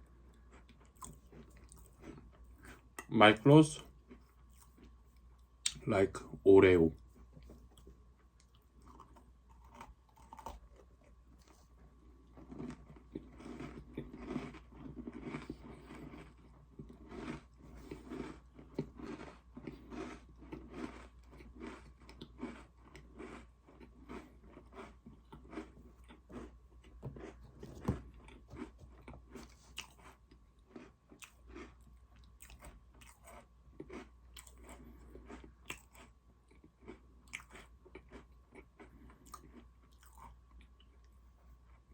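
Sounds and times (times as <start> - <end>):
chewing and crunching cookies: 0.0 - 41.9.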